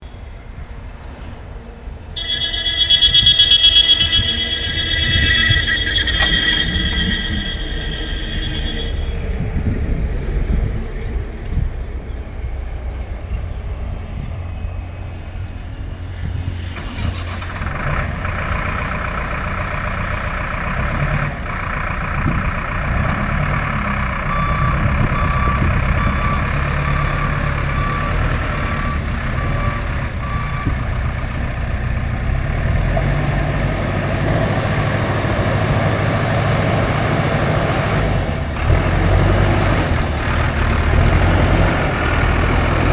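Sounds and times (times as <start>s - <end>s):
short beeps: 2.2s - 9.4s
diesel engine running: 2.2s - 42.9s.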